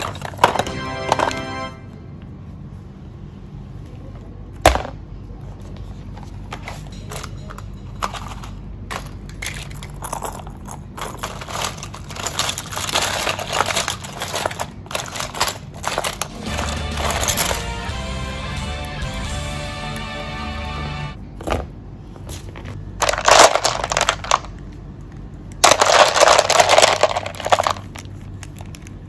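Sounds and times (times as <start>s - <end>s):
crunching and crackling: 6.8s - 18.0s, 22.7s - 29.0s.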